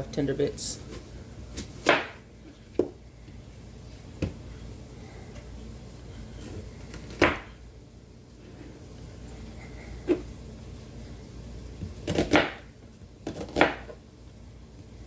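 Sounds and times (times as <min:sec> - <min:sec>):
knife chopping on a cutting board: 0:01.6 - 0:02.2, 0:07.1 - 0:07.5, 0:11.8 - 0:14.0.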